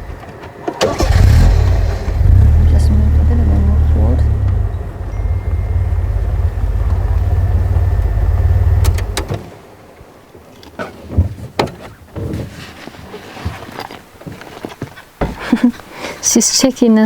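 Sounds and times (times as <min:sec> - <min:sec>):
vehicle engine running: 0:00.8 - 0:09.4
quiet knocks and clicks: 0:07.8 - 0:09.5
sharp clicks: 0:08.8 - 0:09.4.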